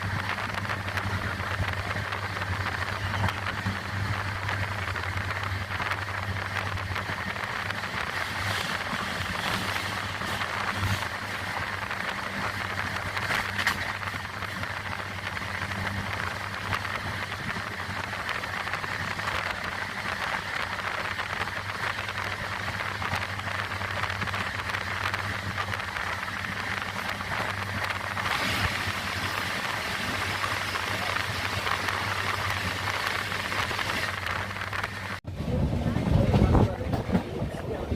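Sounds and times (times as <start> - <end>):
low hum: 0.0 - 37.9
train wheels on track: 0.0 - 37.9.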